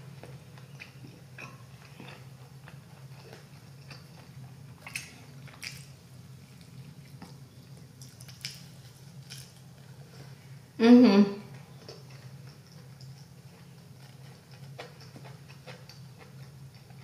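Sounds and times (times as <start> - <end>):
wet chewing and mouth clicks: 0.2 - 5.9.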